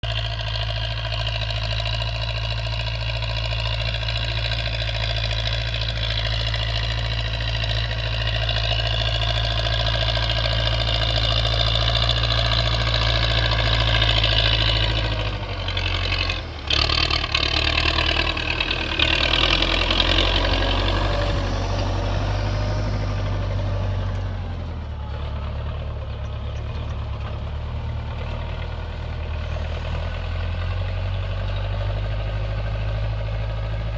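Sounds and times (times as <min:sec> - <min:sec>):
tractor engine running: 0:00.0 - 0:33.9.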